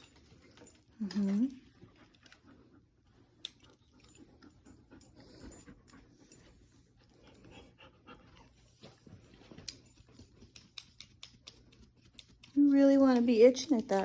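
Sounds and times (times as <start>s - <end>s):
dog panting softly: 0.0s - 13.2s.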